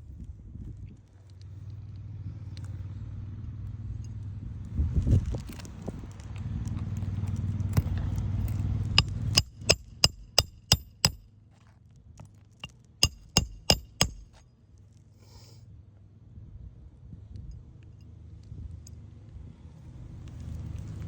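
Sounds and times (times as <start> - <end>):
hammer striking nails: 9.0 - 11.2, 13.0 - 14.4.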